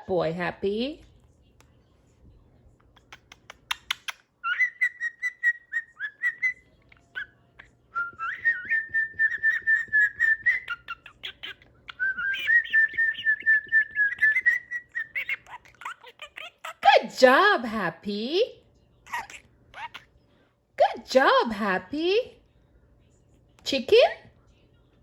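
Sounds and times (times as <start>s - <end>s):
budgie clicks and chirps: 2.8s - 5.4s.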